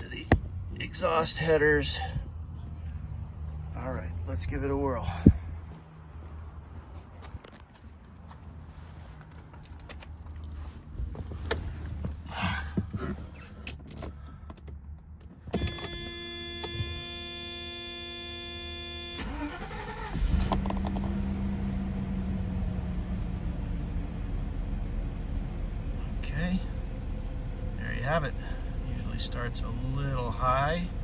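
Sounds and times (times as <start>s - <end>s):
starter motor whine: 19.0s - 22.8s
car engine fast idle: 19.2s - 31.0s.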